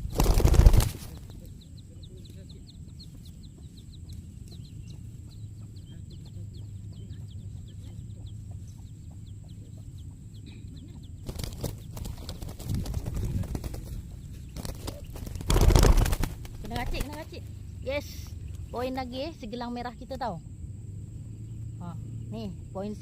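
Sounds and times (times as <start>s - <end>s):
bird wings flapping: 0.0s - 1.5s, 11.2s - 17.5s.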